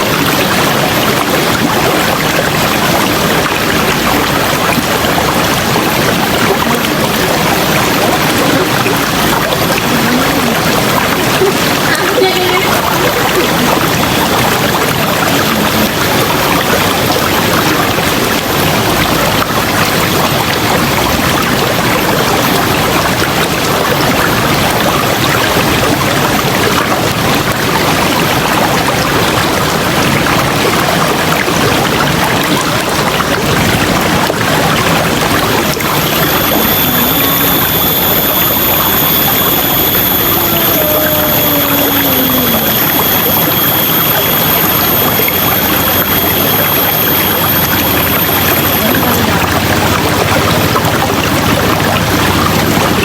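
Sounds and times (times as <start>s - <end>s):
river water flowing: 0.0s - 53.0s
thin high tone: 34.8s - 53.0s.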